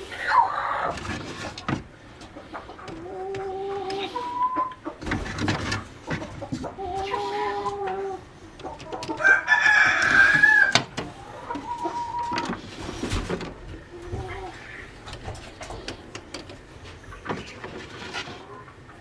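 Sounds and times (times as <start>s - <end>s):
chickens calling: 0.0s - 19.0s
rooster crowing: 9.2s - 12.5s.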